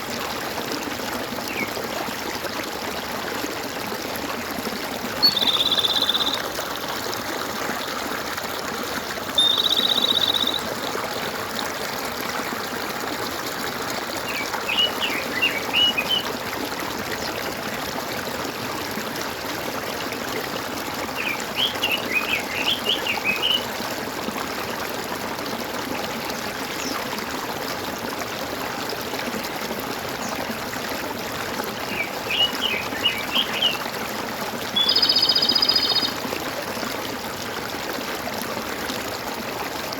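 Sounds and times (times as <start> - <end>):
stream water trickling: 0.0 - 39.9
birds quick chirps: 5.2 - 6.4, 9.4 - 10.7, 34.8 - 36.1
birds buzzy trills: 9.4 - 10.7.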